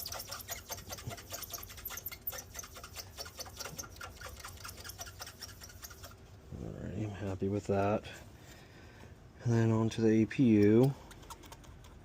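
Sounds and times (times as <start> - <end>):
scratchy rubbing strokes: 0.0 - 6.2.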